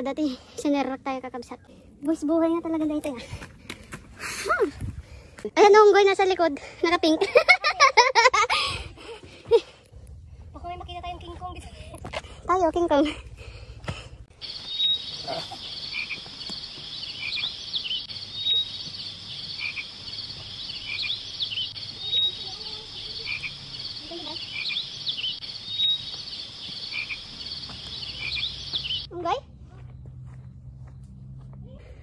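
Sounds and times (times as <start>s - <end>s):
low chirps: 14.3s - 31.2s
high chirring of insects: 14.4s - 29.1s.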